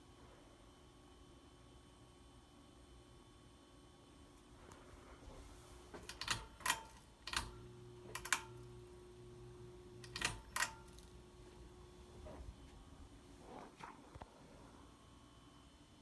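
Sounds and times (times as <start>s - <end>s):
faint steady hum: 0.0s - 16.0s
fan speed control clicks: 5.9s - 13.2s.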